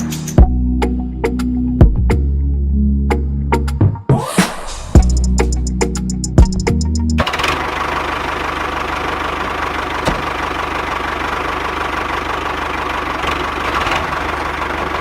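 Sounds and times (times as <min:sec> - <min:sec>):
small engine idling fast: 0:07.2 - 0:15.0.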